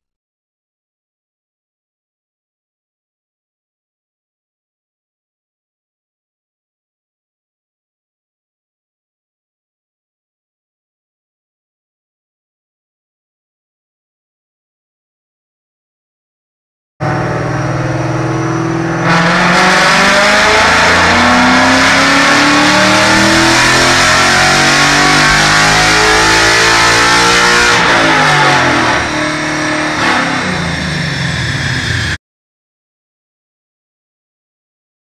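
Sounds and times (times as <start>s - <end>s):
car engine revving on dyno: 17.0s - 32.2s.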